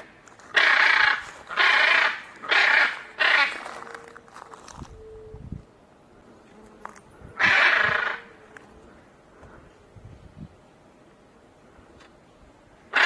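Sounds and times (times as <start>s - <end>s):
macaw squawking: 0.0s - 3.9s, 7.4s - 8.3s.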